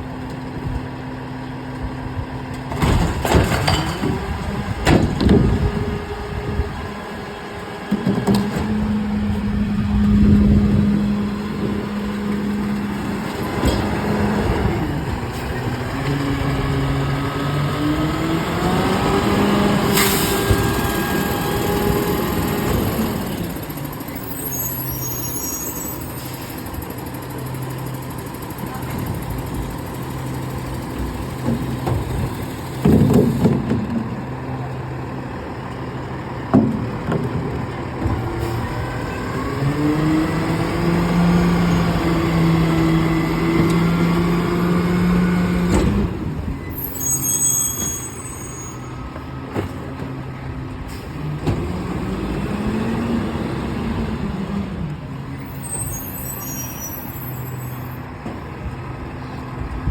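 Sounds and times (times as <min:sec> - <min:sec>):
garbage truck engine running: 0:00.0 - 0:59.9
air brake hisses: 0:19.9 - 0:20.6.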